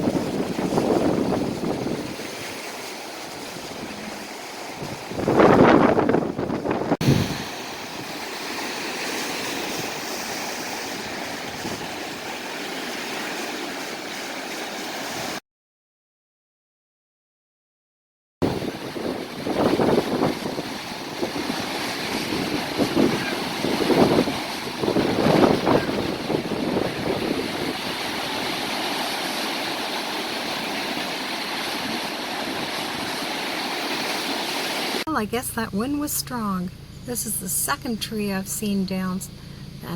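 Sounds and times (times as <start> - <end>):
wind rushing: 0.0 - 2.6, 3.4 - 8.2, 18.4 - 28.6
wind gust buffeting microphone: 0.0 - 8.2, 9.6 - 12.5, 18.4 - 31.0.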